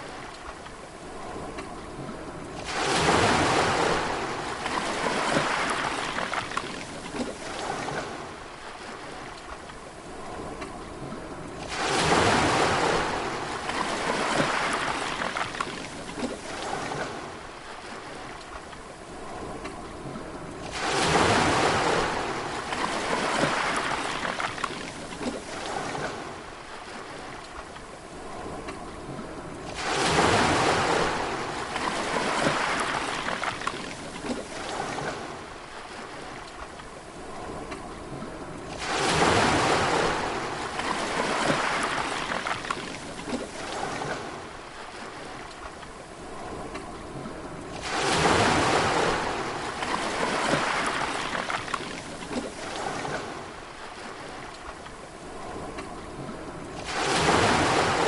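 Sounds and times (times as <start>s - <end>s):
sea waves breaking and washing: 0.0s - 58.0s
large wave crashing: 56.8s - 58.0s.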